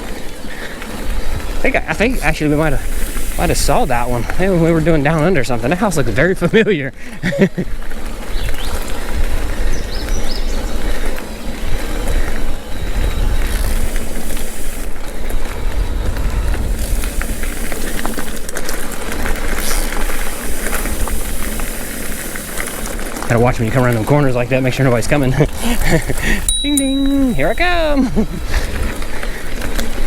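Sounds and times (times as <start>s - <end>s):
bike tyres on dirt: 0.0s - 30.0s
bike clicks and rattles: 7.3s - 27.6s
wind rumble on microphone: 8.1s - 17.8s.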